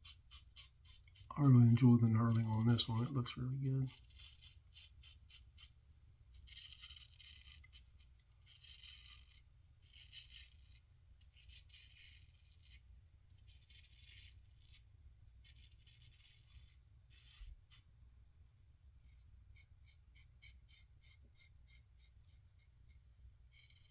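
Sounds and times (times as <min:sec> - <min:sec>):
razor scraping stubble: 0:00.0 - 0:05.7, 0:06.4 - 0:17.8.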